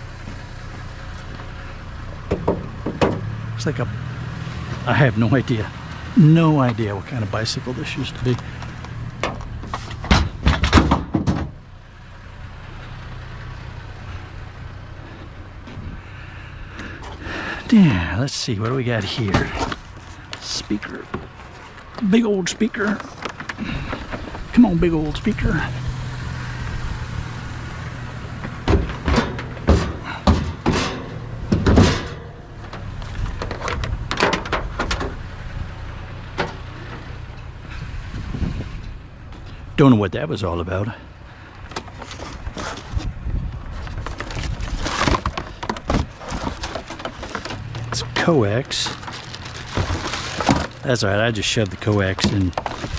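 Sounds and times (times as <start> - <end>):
vehicle engine idling: 0.0 - 52.9
metal clanks and knocks: 2.2 - 3.4, 8.2 - 11.6, 28.4 - 35.2, 36.3 - 37.5, 43.9 - 50.8
speaker cabinet knocking and clattering: 2.3 - 3.3, 28.6 - 32.2.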